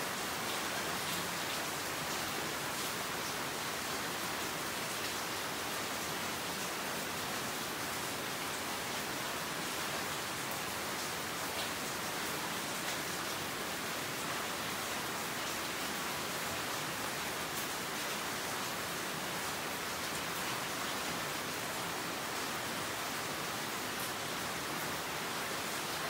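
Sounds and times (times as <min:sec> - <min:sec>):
rain falling on leaves: 0:00.0 - 0:26.0.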